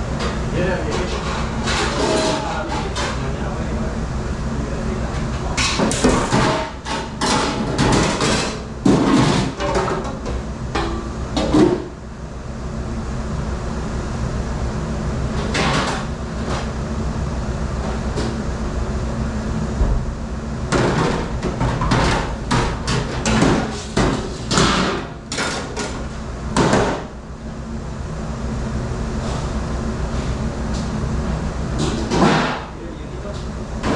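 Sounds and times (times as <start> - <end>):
kitchen machinery drone: 0.0 - 33.9
dishes and racks clanking: 0.1 - 3.8, 4.9 - 11.9, 15.4 - 16.7, 20.7 - 27.2, 29.2 - 33.9.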